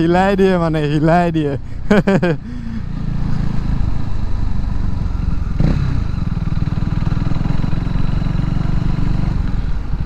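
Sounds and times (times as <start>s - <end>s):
motorcycle engine running loud: 2.7s - 10.0s.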